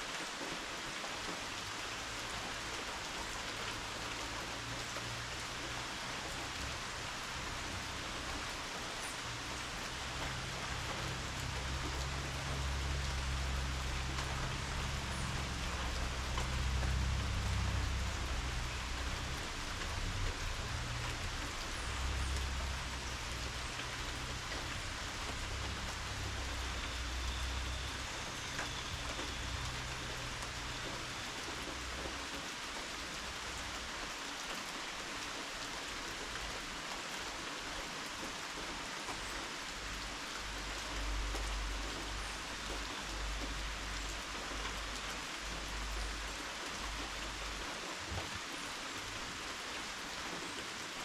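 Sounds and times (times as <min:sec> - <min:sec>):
steady rainfall: 0:00.0 - 0:51.0
low rumble: 0:09.5 - 0:31.0.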